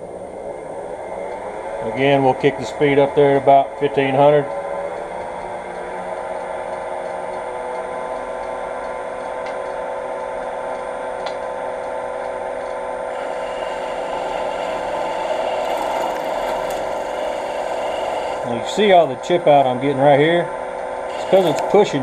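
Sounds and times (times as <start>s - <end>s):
wood lathe motor hum: 13.1s - 22.0s
gouge scraping wood: 13.2s - 18.5s, 21.1s - 21.8s.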